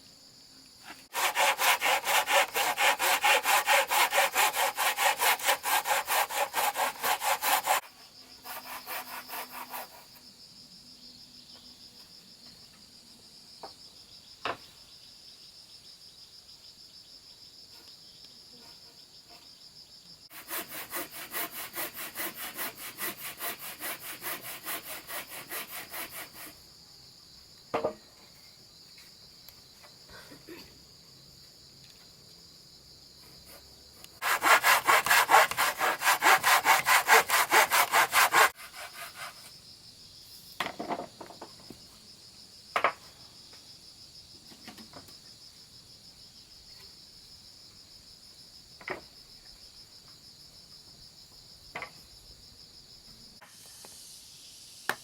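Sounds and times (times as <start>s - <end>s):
high insect drone: 0.0s - 55.0s
hand saw cutting wood: 0.9s - 10.1s, 20.3s - 26.6s, 34.2s - 39.5s
knocks: 27.7s - 28.0s.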